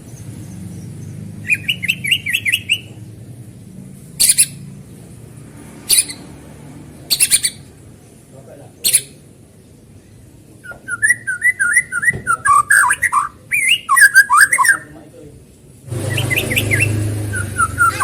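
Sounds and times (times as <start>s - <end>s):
bird singing whistled notes: 0.7s - 3.0s, 10.6s - 14.9s, 16.0s - 18.0s.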